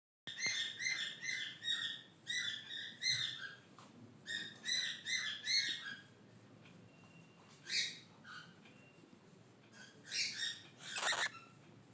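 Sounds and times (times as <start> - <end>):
cockatiel chirping: 9.8 - 11.5.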